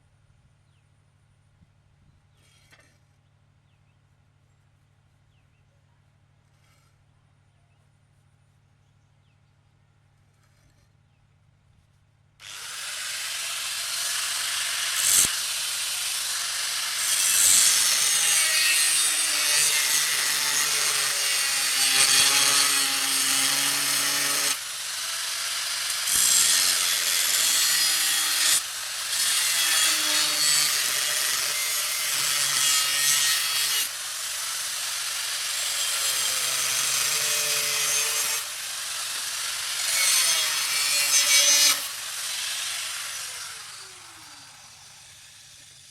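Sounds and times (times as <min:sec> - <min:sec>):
power tool grinding metal: 0:12.4 - 0:45.9.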